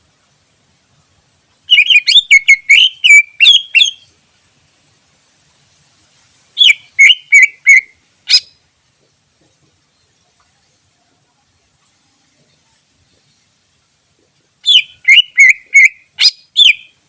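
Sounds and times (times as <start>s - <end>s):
bird chattering whistled notes: 1.7s - 4.1s, 6.6s - 8.6s, 14.6s - 17.0s.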